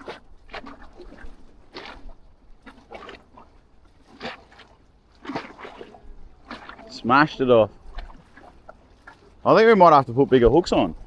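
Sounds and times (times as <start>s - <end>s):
small waves lapping against jetty: 0.0s - 11.0s.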